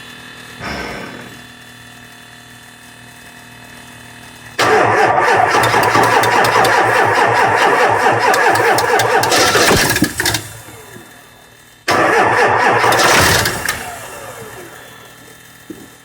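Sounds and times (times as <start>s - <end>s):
diesel engine cranking: 4.6s - 11.2s, 11.9s - 15.2s.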